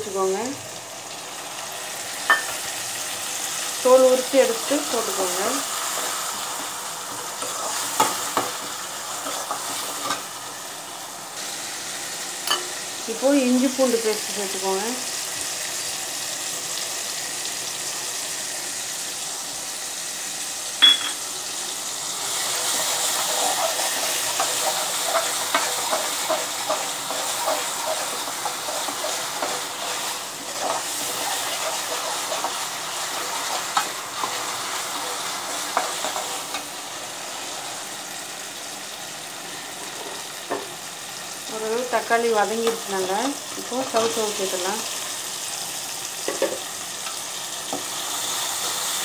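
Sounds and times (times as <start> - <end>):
masala sizzling in oil: 0.0 - 49.0
spoon scraping and clinking on pan: 2.3 - 2.6, 20.8 - 21.2, 23.2 - 32.6.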